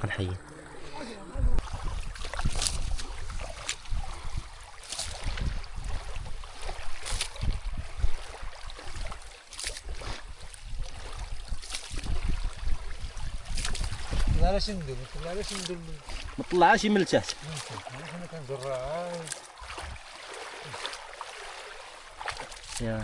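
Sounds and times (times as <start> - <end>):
wind buffeting microphone: 0.0 - 17.3
river water sloshing: 0.0 - 23.0
short sharp splashes: 1.6 - 23.0.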